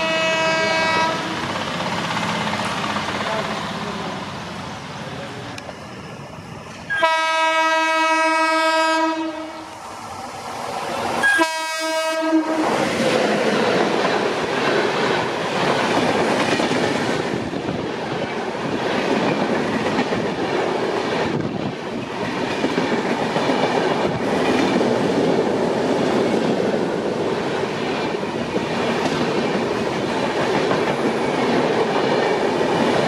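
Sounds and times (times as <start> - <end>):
locomotive horn blasts: 0.0 - 1.4, 6.9 - 9.7, 11.2 - 12.6
train wheels clattering over rail joints: 12.6 - 33.0.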